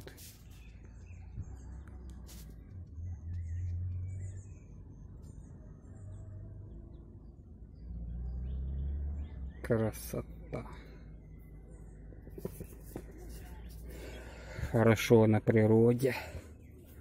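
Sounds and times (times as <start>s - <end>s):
faint high bird chirps: 0.1s - 14.8s
low microphone rumble: 1.1s - 5.0s.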